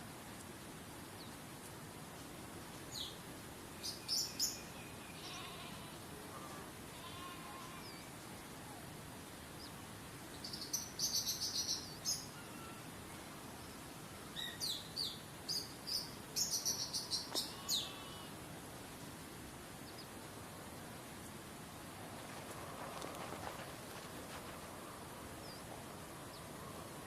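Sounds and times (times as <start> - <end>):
songbird chirping: 0.4 - 18.4, 19.7 - 21.4, 22.0 - 27.0.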